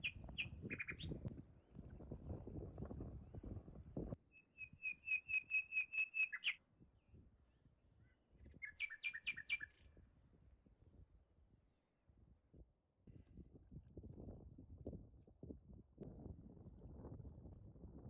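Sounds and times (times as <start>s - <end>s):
songbird singing high notes: 4.6s - 6.6s.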